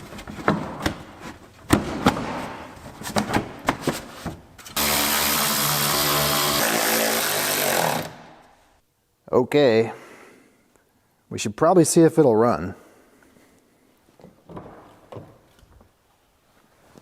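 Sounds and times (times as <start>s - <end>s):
power tool motor running: 4.8s - 8.2s.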